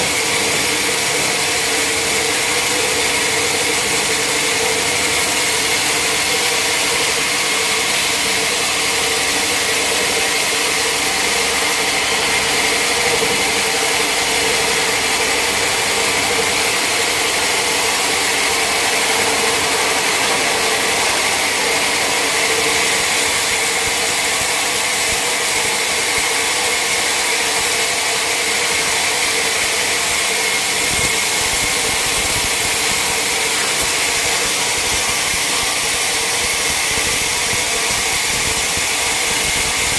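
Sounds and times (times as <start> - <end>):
motor drone: 0.0 - 39.9
steady high whine: 0.0 - 39.9.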